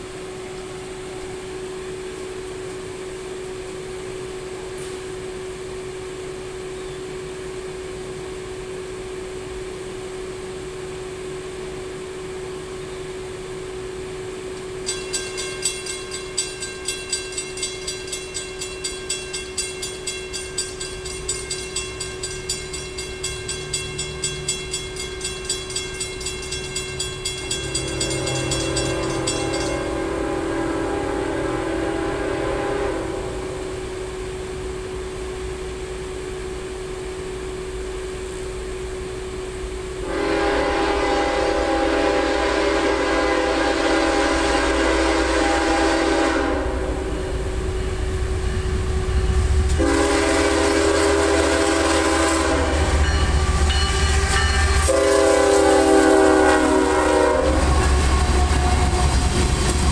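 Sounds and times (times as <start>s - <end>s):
diesel freight train rumble: 0.0s - 59.9s
railroad crossing bell ringing: 14.7s - 31.2s, 40.1s - 59.0s
locomotive horn blast: 27.4s - 33.8s, 40.0s - 47.4s, 49.7s - 59.4s.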